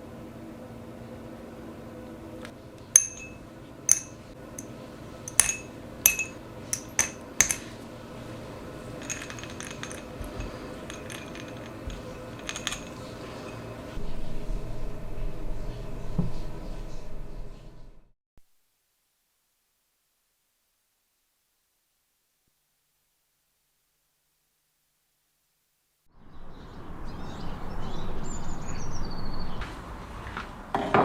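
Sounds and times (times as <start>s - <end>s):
small metal parts clinking: 3.0s - 4.7s, 5.3s - 7.8s, 8.9s - 13.7s
light rattles: 8.9s - 13.9s.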